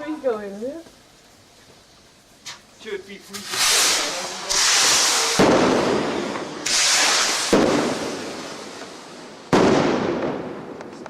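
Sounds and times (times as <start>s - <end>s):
firework hissing up: 0.0s - 10.8s
firework bang: 3.3s - 11.0s.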